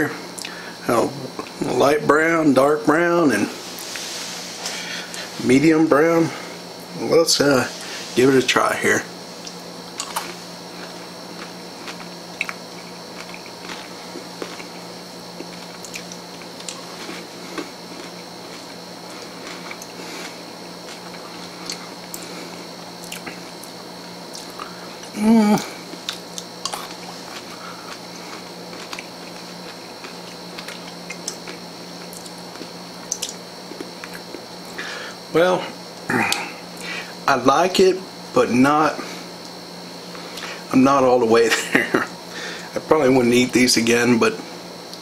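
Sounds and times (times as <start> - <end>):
faint high whine: 0.0 - 45.0
low background hum: 0.0 - 45.0
candy crunching while chewing: 9.4 - 14.8, 15.4 - 25.2, 25.9 - 34.8.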